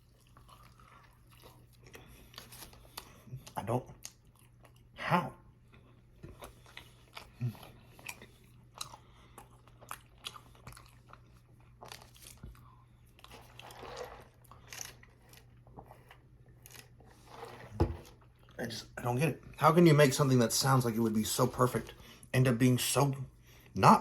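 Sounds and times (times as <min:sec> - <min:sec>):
close chewing and biting: 0:00.0 - 0:05.0, 0:05.6 - 0:18.6.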